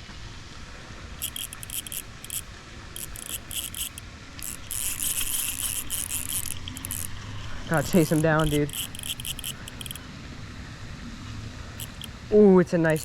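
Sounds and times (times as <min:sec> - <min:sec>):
fishing reel drag clicking: 0:01.2 - 0:10.0, 0:11.8 - 0:13.0.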